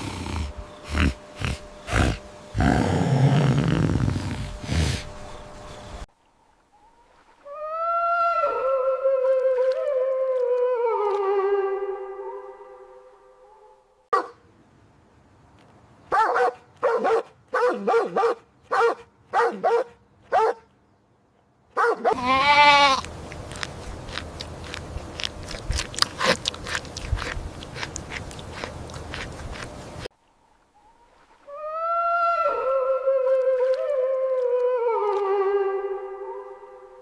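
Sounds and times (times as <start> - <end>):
animal calling: 0.0 - 5.4, 22.1 - 23.1.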